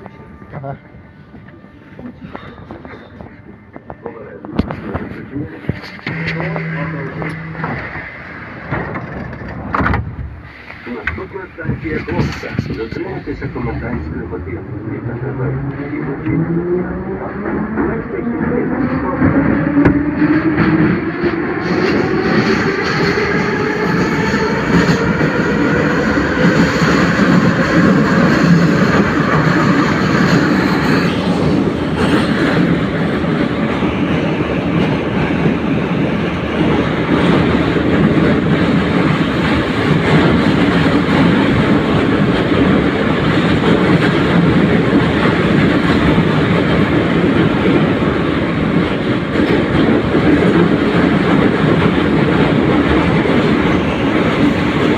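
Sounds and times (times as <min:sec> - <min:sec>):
wheels rumbling on rails: 0:00.0 - 0:54.9
train traction motors whining: 0:02.7 - 0:18.3.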